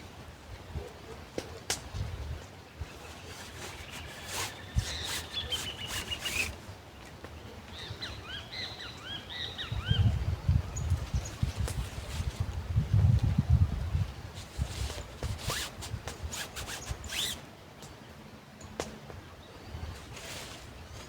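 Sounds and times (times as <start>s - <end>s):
birds calling: 2.4s - 12.4s.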